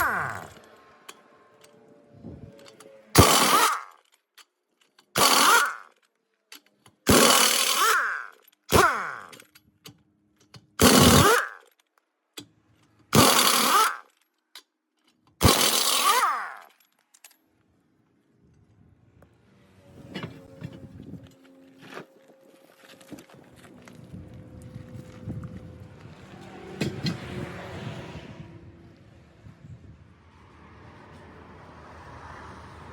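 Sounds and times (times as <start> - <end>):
pneumatic impact wrench bursts: 0.0 - 0.7, 2.7 - 4.0, 5.1 - 6.0, 7.1 - 9.6, 10.8 - 11.7, 13.1 - 14.1, 15.4 - 16.7.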